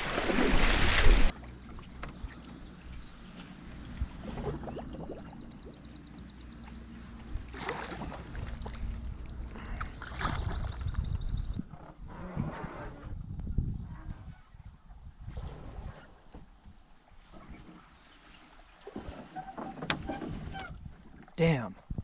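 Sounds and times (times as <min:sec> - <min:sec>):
water splashing and gurgling: 0:00.0 - 0:11.8.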